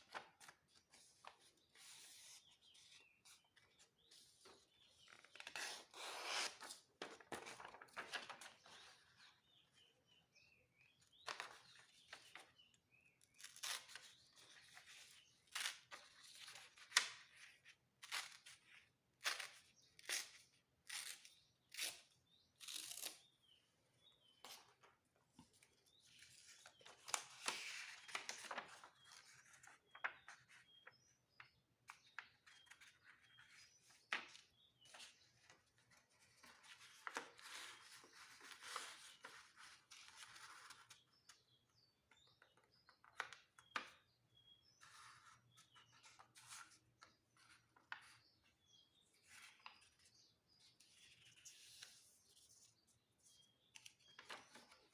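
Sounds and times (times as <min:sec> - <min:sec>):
paper being folded and crinkling: 0:00.0 - 0:09.1, 0:26.2 - 0:30.6, 0:34.1 - 0:41.0.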